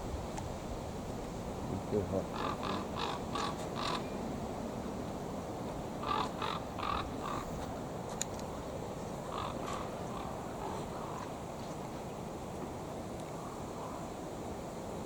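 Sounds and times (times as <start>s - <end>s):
wind noise on microphone: 0.0s - 15.0s
crows cawing: 2.2s - 4.1s, 6.0s - 7.5s, 9.3s - 11.4s.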